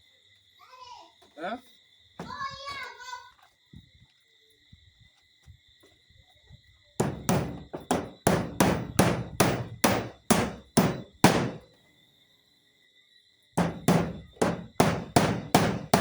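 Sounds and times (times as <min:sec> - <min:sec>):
hammer driving nails: 0:07.0 - 0:11.7, 0:13.6 - 0:16.0.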